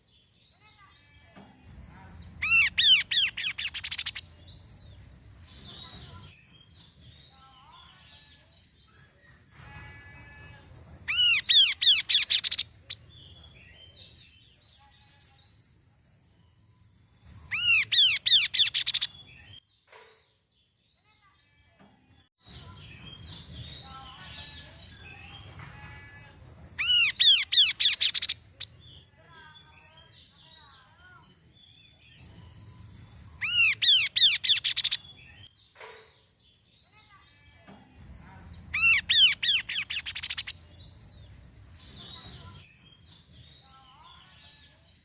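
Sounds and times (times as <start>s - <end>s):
bird chirps and twittering: 0.0s - 19.9s, 22.4s - 45.0s
bird whistling song: 2.2s - 4.9s, 11.1s - 13.3s, 17.3s - 19.6s, 26.8s - 29.0s, 32.1s - 35.6s, 38.6s - 41.2s.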